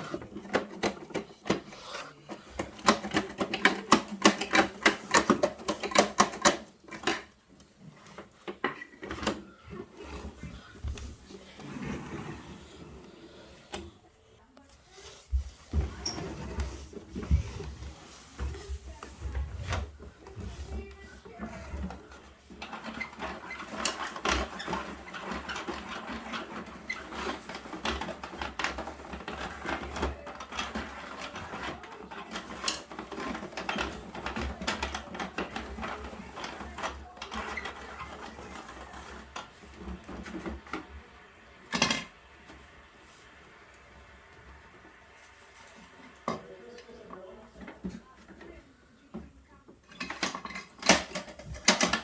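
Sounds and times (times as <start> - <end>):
toy truck plastic rattling: 0.0 - 7.4, 17.6 - 40.8, 50.0 - 52.0.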